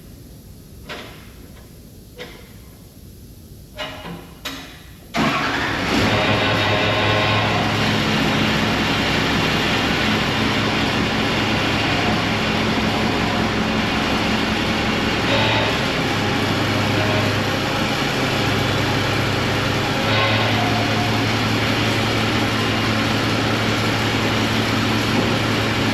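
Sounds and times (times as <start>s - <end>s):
diesel engine idling: 5.2s - 25.9s.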